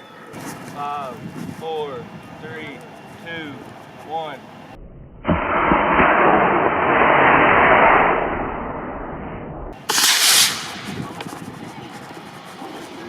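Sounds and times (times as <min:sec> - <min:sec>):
brief loud hiss: 0:09.8 - 0:11.2.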